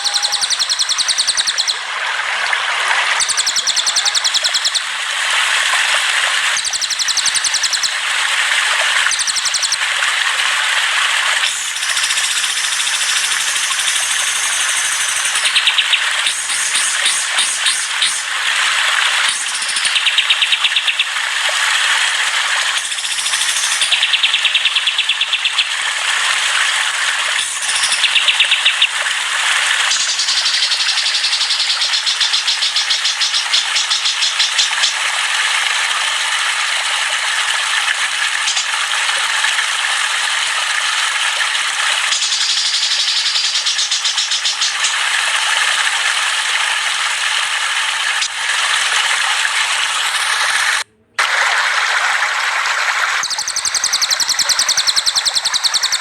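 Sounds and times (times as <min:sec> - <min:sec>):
songbirds singing: 0:00.0 - 0:01.8, 0:03.2 - 0:05.0, 0:06.6 - 0:07.9, 0:09.1 - 0:09.8, 0:11.4 - 0:18.3, 0:19.3 - 0:21.2, 0:22.7 - 0:25.7, 0:27.4 - 0:29.0, 0:29.8 - 0:35.0, 0:42.1 - 0:45.0, 0:53.2 - 0:56.0.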